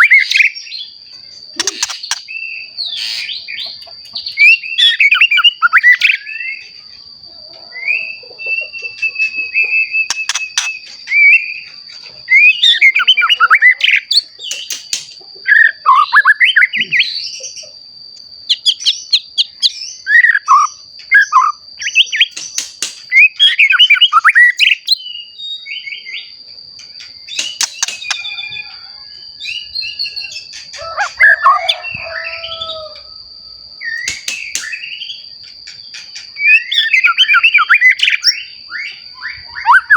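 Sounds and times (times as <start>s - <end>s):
bird singing whistled phrases: 0.0s - 0.8s, 1.6s - 6.7s, 7.7s - 14.8s, 15.5s - 17.5s, 18.5s - 22.5s, 23.1s - 26.3s, 33.8s - 35.2s, 36.3s - 39.9s.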